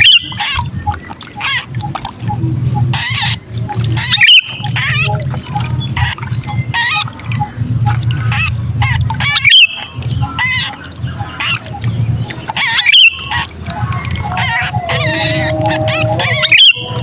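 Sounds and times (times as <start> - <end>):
steady low hum: 0.0 - 17.0
bird distress squawks: 12.5 - 17.0.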